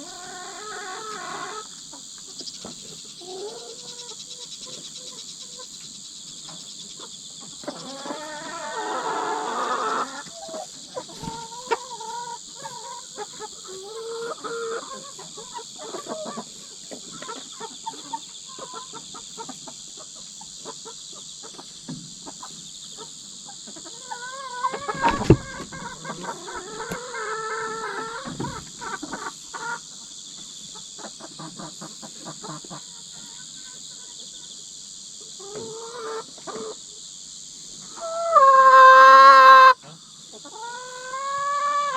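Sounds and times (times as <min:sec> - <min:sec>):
hens clucking and squawking: 0:00.0 - 0:05.8, 0:06.5 - 0:30.0, 0:30.7 - 0:34.6, 0:35.3 - 0:36.9, 0:37.8 - 0:41.9
insects chirring: 0:00.0 - 0:41.9
sharp thumps: 0:24.8 - 0:26.1.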